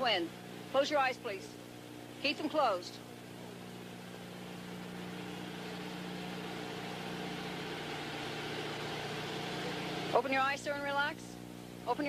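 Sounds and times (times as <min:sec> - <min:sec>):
vehicle engine idling: 0:03.0 - 0:10.5.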